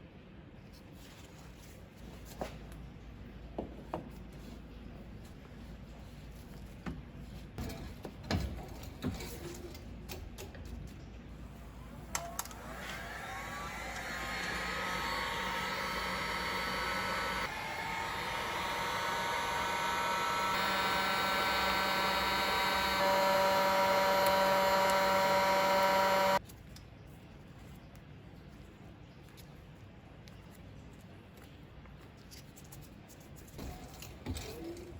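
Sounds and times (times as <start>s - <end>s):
small electric motor whining: 11.9s - 26.4s.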